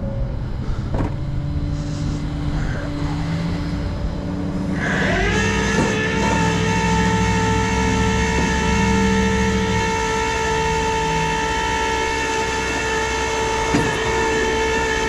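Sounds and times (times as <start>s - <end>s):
rising whine: 0.0s - 15.0s
truck engine droning: 0.0s - 15.0s.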